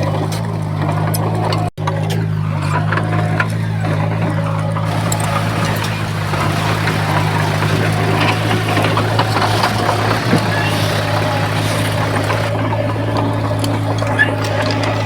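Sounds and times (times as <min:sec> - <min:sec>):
clanks and rattles: 0:04.9 - 0:12.6
bulldozer diesel engine running: 0:04.9 - 0:15.0.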